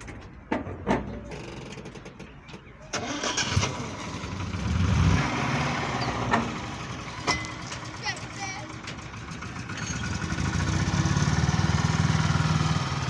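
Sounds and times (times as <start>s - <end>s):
car engine starting and running: 1.3s - 13.0s.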